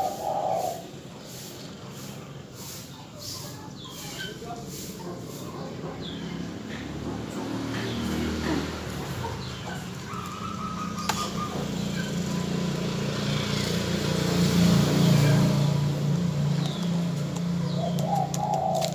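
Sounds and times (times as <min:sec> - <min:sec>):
small bird chirps: 0:02.6 - 0:04.6, 0:09.2 - 0:13.8, 0:15.6 - 0:18.9.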